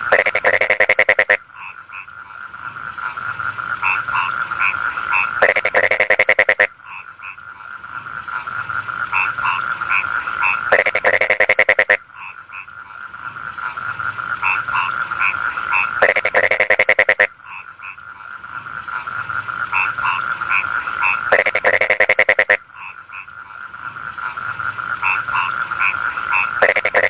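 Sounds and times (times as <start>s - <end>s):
frogs croaking: 0.0s - 27.0s.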